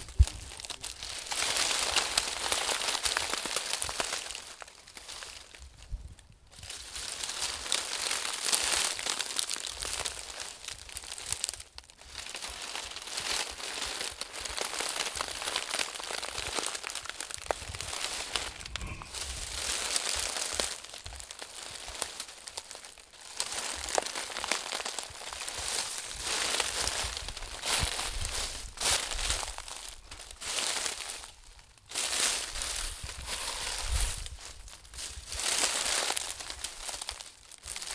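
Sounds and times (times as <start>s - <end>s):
crinkling and scratching on microphone: 0.0s - 4.4s, 12.2s - 37.2s.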